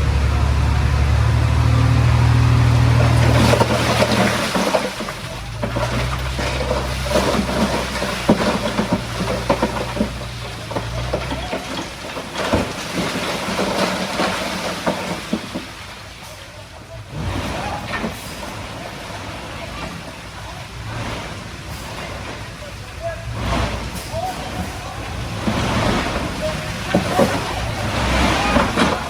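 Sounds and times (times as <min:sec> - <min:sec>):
diesel machinery engine: 0:00.0 - 0:29.0
stone and rock clattering: 0:03.0 - 0:16.0.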